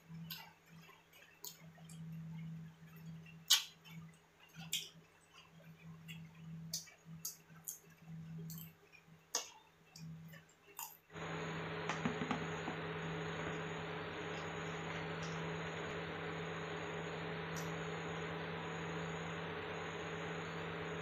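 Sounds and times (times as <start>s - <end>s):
steady hiss: 11.2s - 21.0s.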